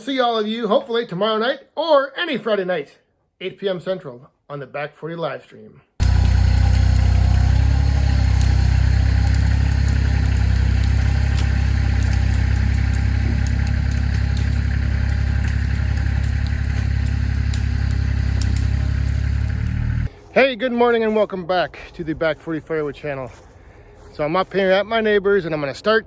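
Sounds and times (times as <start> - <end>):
diesel tractor engine running: 6.0 - 20.1.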